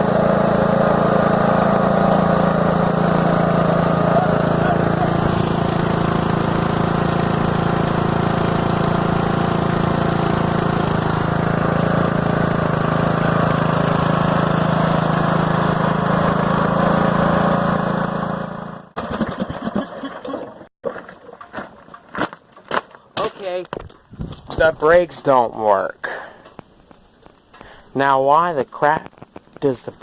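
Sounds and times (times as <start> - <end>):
lawn tractor engine running: 0.0 - 19.8.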